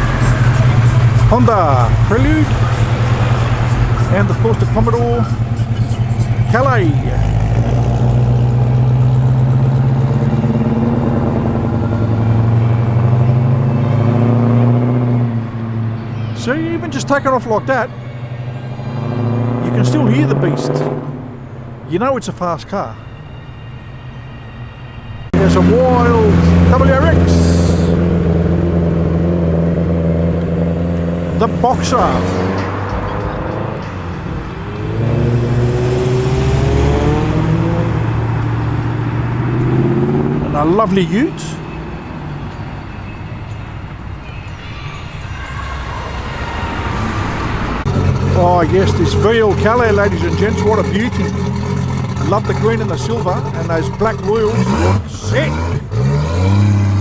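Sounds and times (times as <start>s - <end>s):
car engine pulling away: 0.0s - 44.6s, 45.2s - 57.0s.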